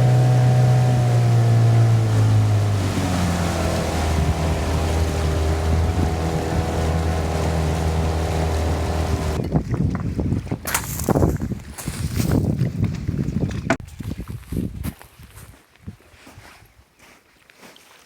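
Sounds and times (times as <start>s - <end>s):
boat engine running: 0.0s - 9.7s
water noise: 0.0s - 13.8s
wind noise: 0.0s - 16.0s.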